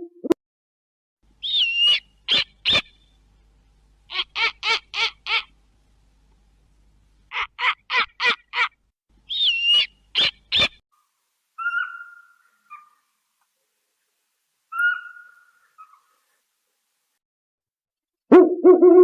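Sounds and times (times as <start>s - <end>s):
owl harsh calls: 1.4s - 3.0s, 4.1s - 5.5s, 7.3s - 10.8s, 11.6s - 13.2s, 14.7s - 16.3s
owl whistled hoots: 1.4s - 3.0s, 9.3s - 10.8s, 11.6s - 13.0s, 14.7s - 16.1s.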